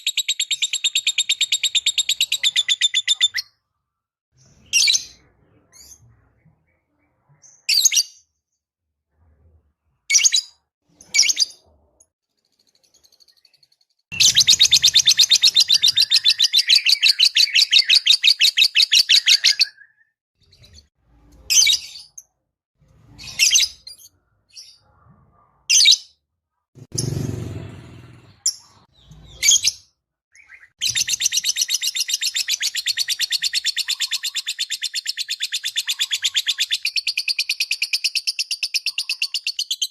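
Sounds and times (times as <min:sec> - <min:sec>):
bird high chirps: 0:00.0 - 0:03.6, 0:12.5 - 0:22.3, 0:28.4 - 0:39.9.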